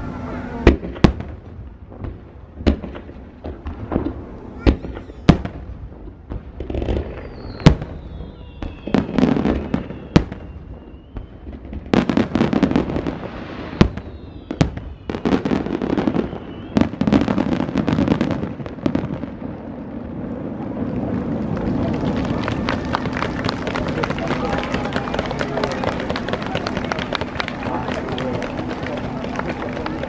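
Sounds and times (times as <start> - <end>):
fireworks crackling: 0.0 - 30.0
firework whistles falling in pitch: 7.0 - 11.7, 13.5 - 17.3.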